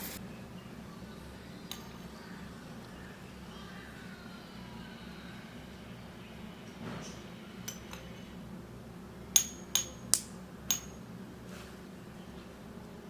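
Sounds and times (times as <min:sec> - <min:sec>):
miniature cookware clinking: 0:01.7 - 0:02.2, 0:09.3 - 0:11.1.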